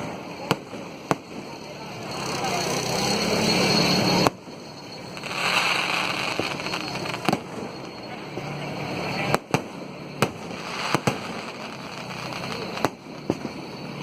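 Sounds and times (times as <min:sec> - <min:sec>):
firecracker bangs: 0:00.0 - 0:02.6, 0:09.1 - 0:13.8
firecrackers crackling: 0:00.0 - 0:14.0.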